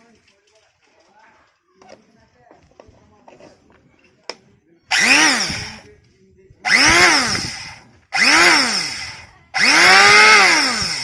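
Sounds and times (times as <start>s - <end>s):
electric planer motor spinning: 4.9s - 5.8s, 6.7s - 11.0s.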